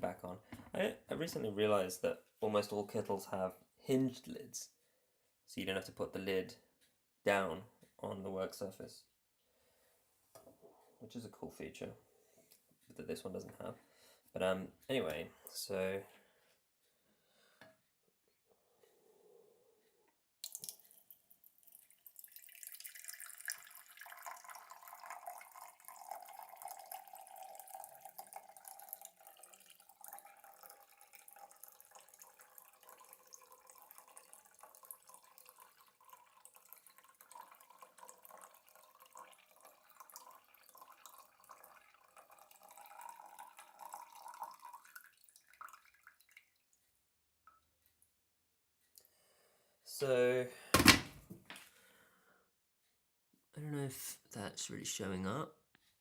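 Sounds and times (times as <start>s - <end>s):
water pouring into container: 20.4s - 46.6s.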